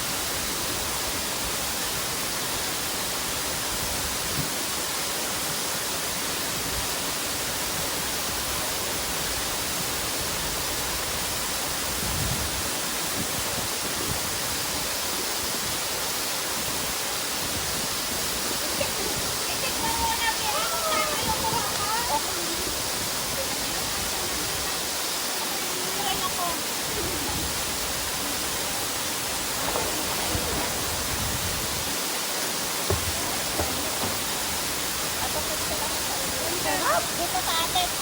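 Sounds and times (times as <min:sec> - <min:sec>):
waterfall rushing: 0:00.0 - 0:38.0
faint low thumps: 0:32.8 - 0:35.0.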